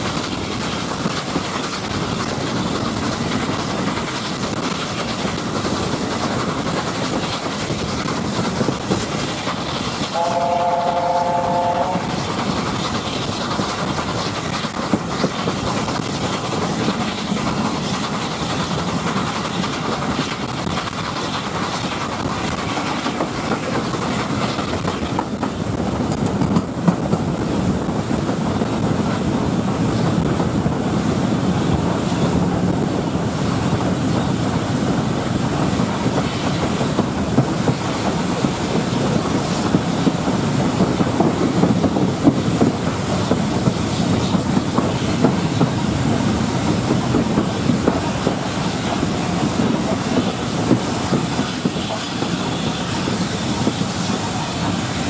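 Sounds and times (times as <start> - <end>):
train running noise: 0.0 - 55.0
wheels clicking over rail joints: 12.1 - 31.0, 31.6 - 55.0.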